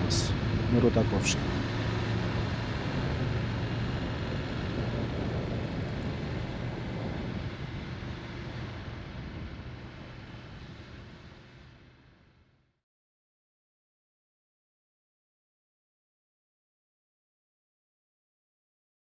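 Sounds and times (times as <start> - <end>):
motorcycle engine hum: 0.0 - 10.4
wind noise: 2.3 - 10.0.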